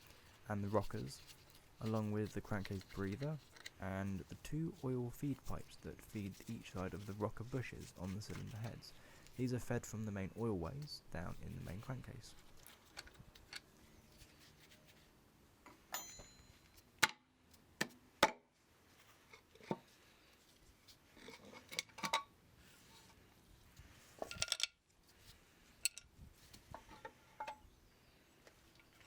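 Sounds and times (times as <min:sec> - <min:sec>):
metal tools clinking: 0:15.9 - 0:16.8, 0:24.2 - 0:24.8, 0:25.8 - 0:26.1.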